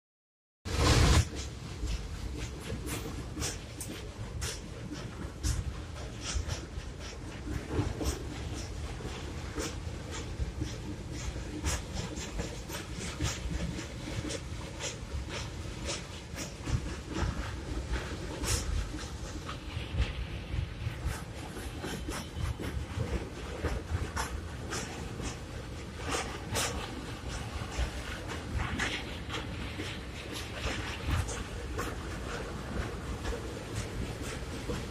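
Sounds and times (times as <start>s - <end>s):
train rumbling: 0.7s - 34.9s.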